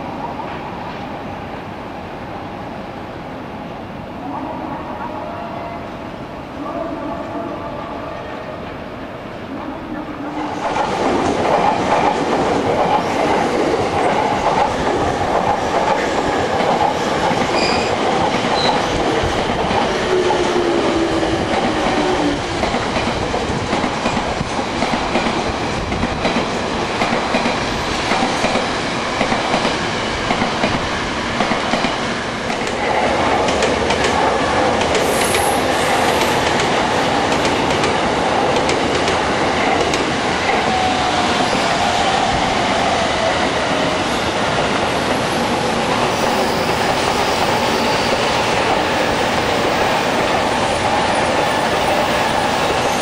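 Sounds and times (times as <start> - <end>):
steel wheels rumbling on rail: 8.5 - 53.0
clickety-clack over rail joints: 10.5 - 20.8, 21.5 - 40.8.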